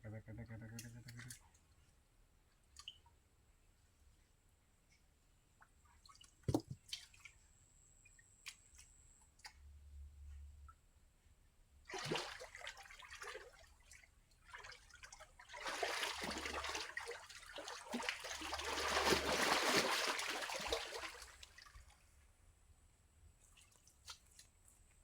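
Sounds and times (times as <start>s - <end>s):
muddy water splashing and trickling: 5.8s - 7.5s, 11.9s - 22.0s, 23.4s - 24.8s.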